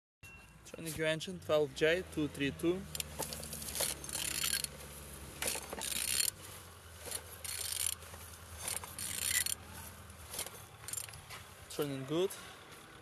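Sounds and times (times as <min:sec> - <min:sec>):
engine turned over by hand: 0:02.8 - 0:11.4.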